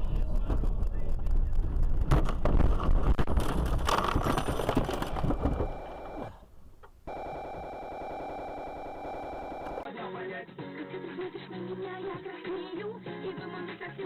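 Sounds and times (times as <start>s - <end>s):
knocks and clatters: 0.0s - 6.1s.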